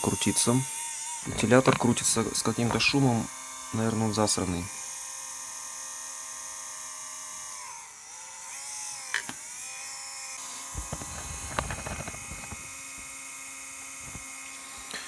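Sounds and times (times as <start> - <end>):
small cooling fan whine: 8.9 - 15.0.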